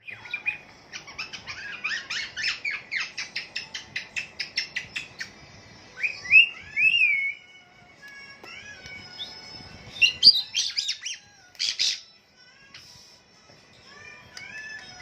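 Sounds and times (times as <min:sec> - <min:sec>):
birds chirping rapidly: 0:00.0 - 0:05.4, 0:09.2 - 0:12.1.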